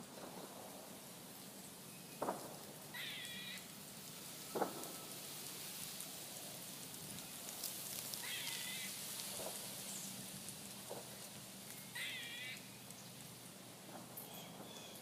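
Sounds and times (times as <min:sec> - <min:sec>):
background hiss: 0:00.0 - 0:15.0
squirrel squealing: 0:03.0 - 0:03.6, 0:08.2 - 0:08.9, 0:12.0 - 0:12.6.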